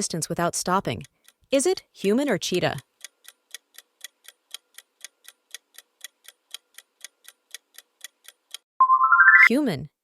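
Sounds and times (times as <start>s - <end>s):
clock ticking: 0.8s - 8.7s.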